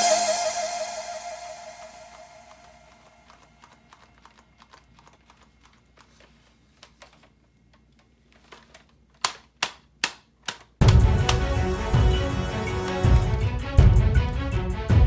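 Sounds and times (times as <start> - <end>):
plastic toys clicking: 2.5 - 11.5.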